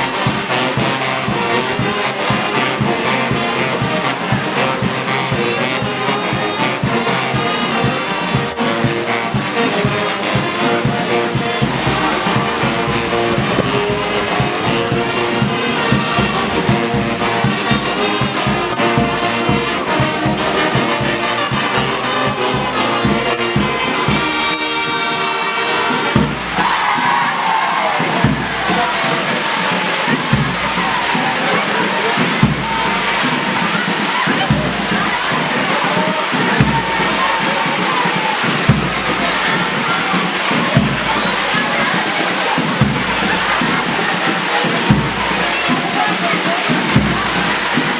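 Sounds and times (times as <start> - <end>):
brass band playing march: 0.0 - 47.9
steady drumbeat: 0.0 - 47.9.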